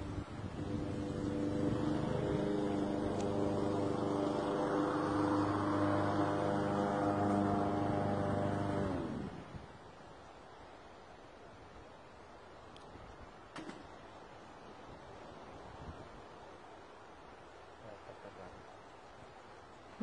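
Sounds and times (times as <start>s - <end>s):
motor humming: 0.0s - 9.5s.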